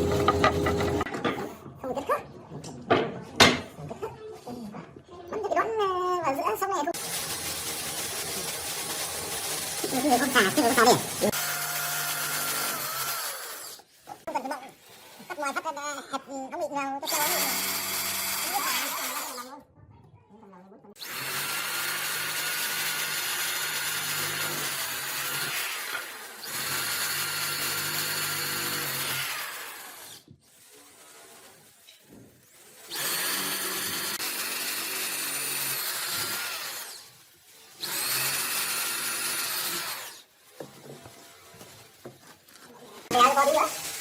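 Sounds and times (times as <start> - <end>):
power tool motor whine: 0.0 - 1.1, 7.0 - 13.8, 17.1 - 19.4, 21.0 - 31.4, 32.6 - 37.1, 37.8 - 41.4.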